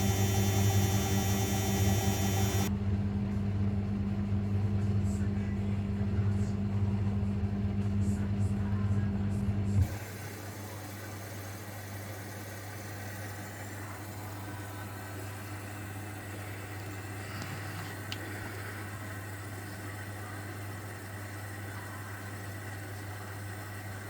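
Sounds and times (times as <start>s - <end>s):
washing machine motor hum: 0.0s - 2.8s, 9.7s - 24.0s.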